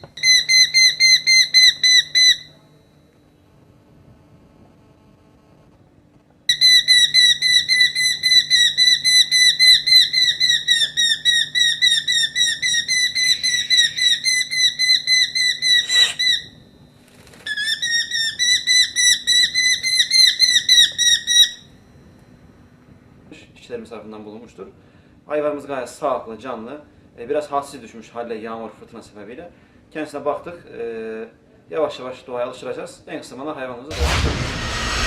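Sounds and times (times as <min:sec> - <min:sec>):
young falcon calling: 0:00.2 - 0:02.5, 0:06.6 - 0:16.6.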